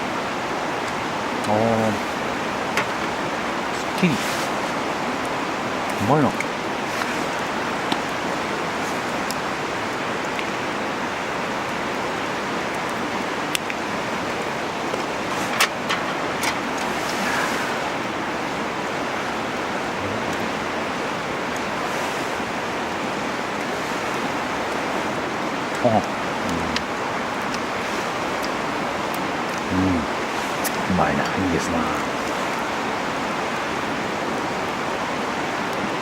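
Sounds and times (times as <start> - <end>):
campfire popping: 12.7 - 32.8.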